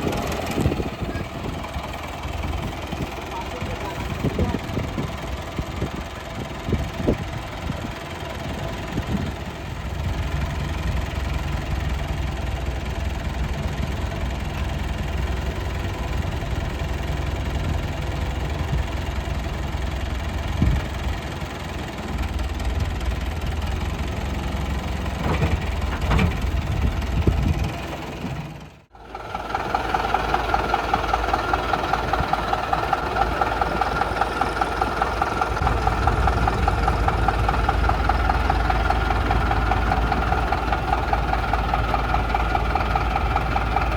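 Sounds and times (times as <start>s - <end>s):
diesel engine idling: 0.0s - 43.9s
diesel engines running: 0.0s - 43.9s.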